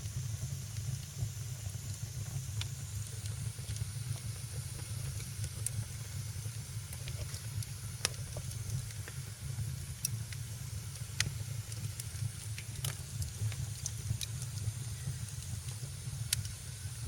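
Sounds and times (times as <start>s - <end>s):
low rumble and hiss: 0.0s - 17.0s
wood fire crackling: 0.0s - 17.0s.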